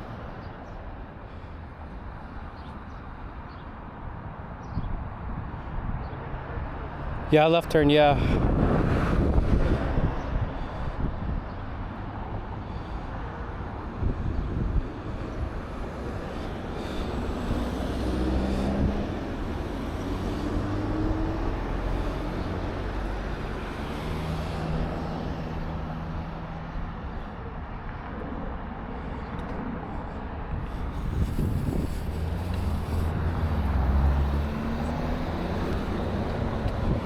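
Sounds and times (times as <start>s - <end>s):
wind rushing on microphone: 4.1s - 37.0s
motor vehicle engine: 30.6s - 37.0s.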